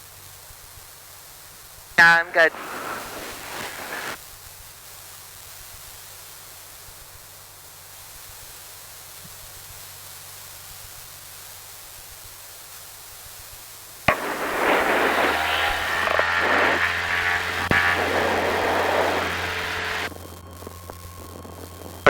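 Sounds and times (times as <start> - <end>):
loud aircraft engine noise: 2.2 - 4.2, 14.1 - 20.1
quiet hiss with low hum: 14.1 - 22.0.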